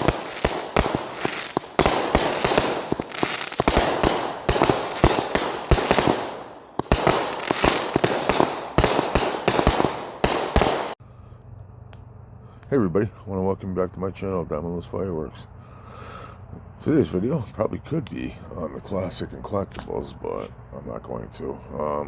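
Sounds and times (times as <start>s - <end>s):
fireworks hissing: 0.0s - 11.0s
fireworks popping and banging: 0.0s - 11.0s.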